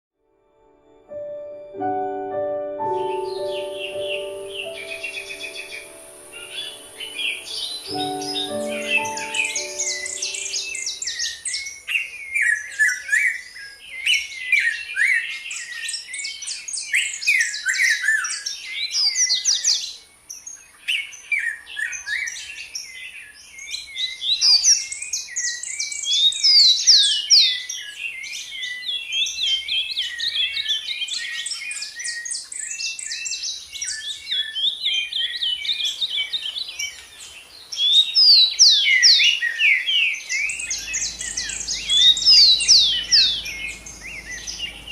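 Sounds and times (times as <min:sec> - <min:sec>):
steady high hiss: 0:01.8 - 0:11.2
songbirds singing and chirping: 0:01.9 - 0:44.9.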